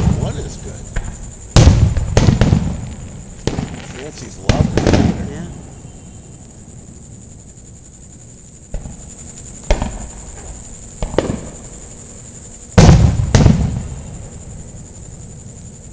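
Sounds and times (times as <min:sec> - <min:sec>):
fireworks exploding: 0:00.0 - 0:06.6, 0:08.7 - 0:09.0, 0:09.6 - 0:11.9, 0:12.7 - 0:15.4.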